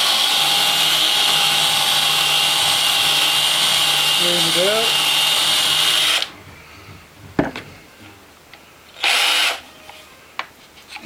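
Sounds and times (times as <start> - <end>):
power drill boring into wood: 0.0 - 6.3, 9.0 - 9.6
knock: 6.9 - 7.8.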